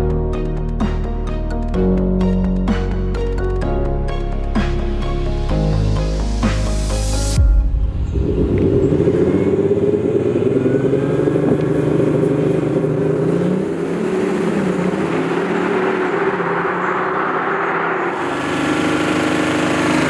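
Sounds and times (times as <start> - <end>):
diesel car engine running: 8.1 - 20.0.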